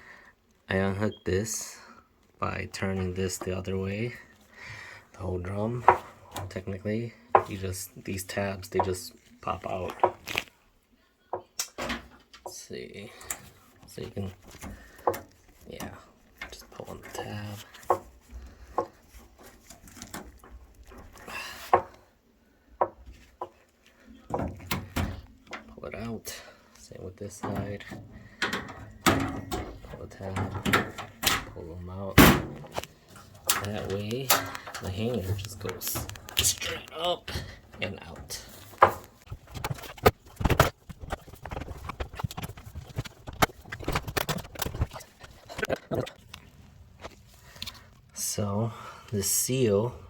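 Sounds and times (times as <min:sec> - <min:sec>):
plastic parts knocking and clicking: 0:14.4 - 0:22.0, 0:24.3 - 0:25.8, 0:27.4 - 0:31.6, 0:38.5 - 0:46.0
washer parts knocking and clunking: 0:24.2 - 0:25.8, 0:27.3 - 0:36.6, 0:37.2 - 0:45.0.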